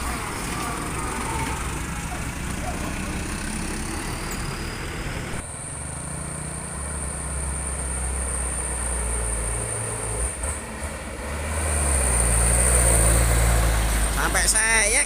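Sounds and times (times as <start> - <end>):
diesel truck engine running: 0.0 - 10.1.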